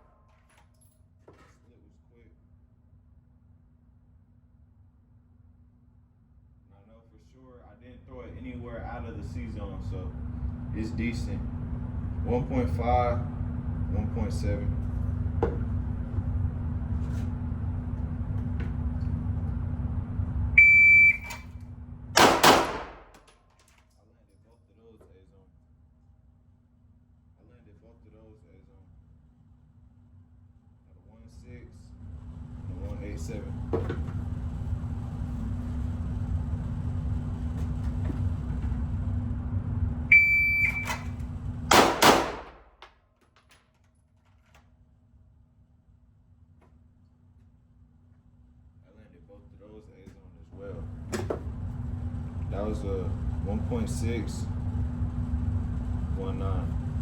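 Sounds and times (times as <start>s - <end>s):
steady low hum: 1.3s - 42.8s, 44.8s - 57.0s
shot timer beep: 20.6s - 21.5s, 40.1s - 41.1s
pistol shots: 22.2s - 23.2s, 41.7s - 42.7s.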